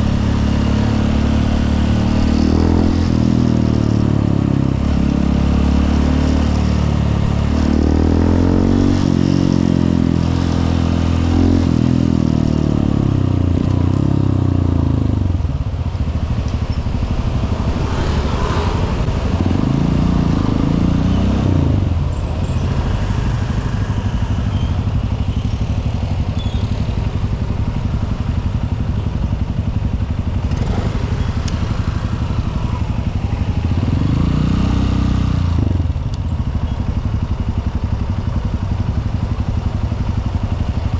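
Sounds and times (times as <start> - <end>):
motorbike engine revving: 0.0 - 15.3, 29.9 - 36.1.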